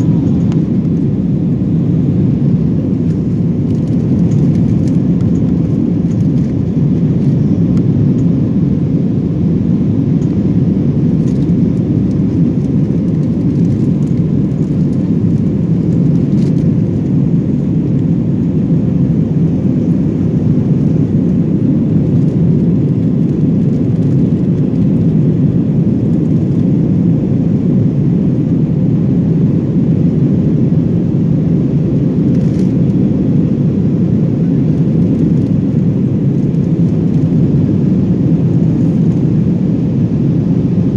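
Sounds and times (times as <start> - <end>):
jet engine drone in cabin: 0.0 - 40.9.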